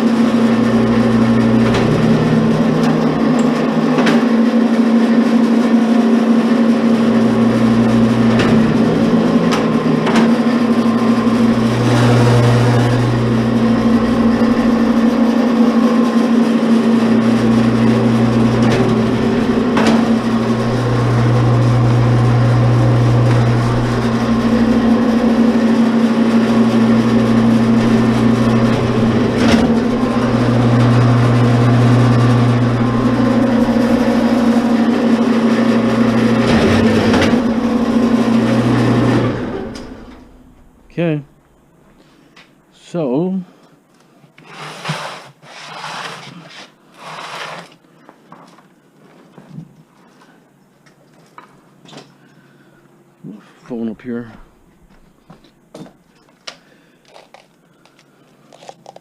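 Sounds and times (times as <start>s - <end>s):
deeper hum: 0.0s - 42.0s
wire stripper motor humming: 0.0s - 42.0s.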